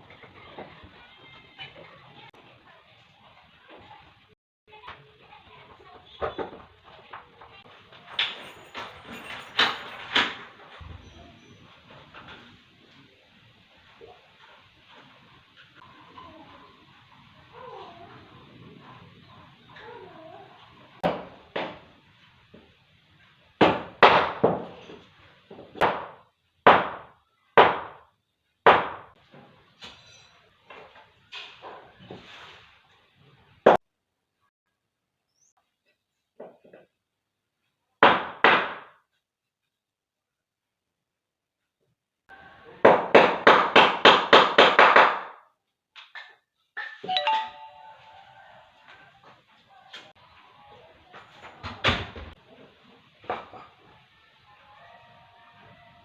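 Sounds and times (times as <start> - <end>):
short ringing tone: 47.1 - 48.6.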